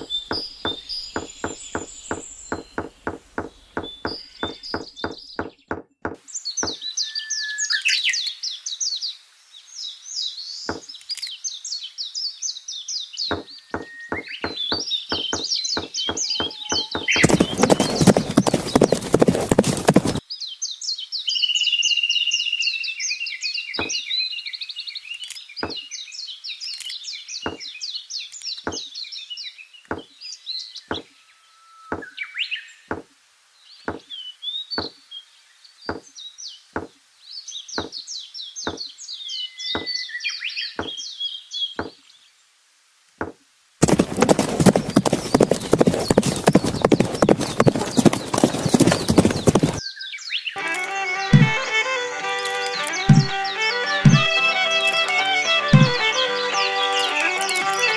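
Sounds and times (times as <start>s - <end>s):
steady ticking: 0.0s - 6.2s, 50.6s - 57.9s
clip-clop hoof sounds: 0.0s - 6.8s, 13.3s - 20.2s, 43.2s - 49.8s, 50.6s - 57.9s
birds chirping: 0.0s - 7.9s, 10.6s - 11.0s, 13.2s - 20.2s, 23.8s - 24.0s, 25.6s - 25.9s, 27.4s - 27.7s, 28.6s - 29.0s, 29.9s - 30.2s, 30.8s - 31.2s, 31.9s - 32.3s, 33.8s - 34.2s, 34.8s - 35.0s, 37.7s - 39.0s, 39.7s - 40.2s, 40.8s - 41.2s, 41.8s - 42.1s, 43.2s - 49.8s, 50.6s - 57.9s.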